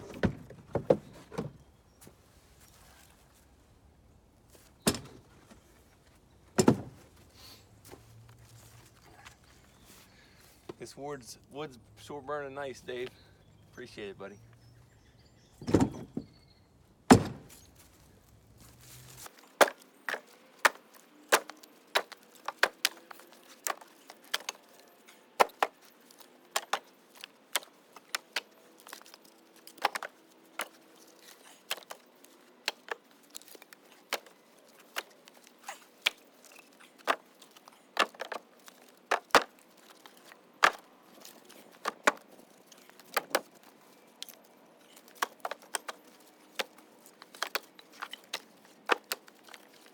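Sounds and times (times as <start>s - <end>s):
firewood knocking into a cart: 0.0s - 1.6s, 4.8s - 5.2s, 6.6s - 7.0s, 15.6s - 16.3s, 17.1s - 17.6s, 25.4s - 29.1s, 29.7s - 30.8s, 37.0s - 43.7s.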